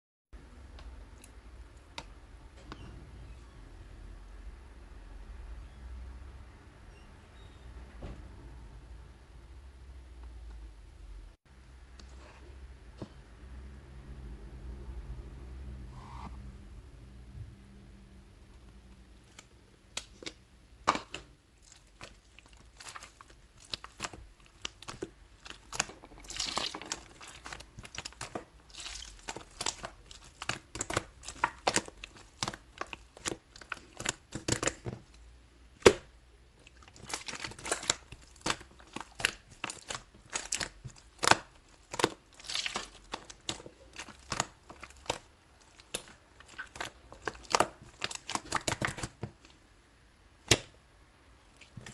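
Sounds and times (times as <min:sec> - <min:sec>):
slime popping and crackling: 0:19.4 - 0:49.5.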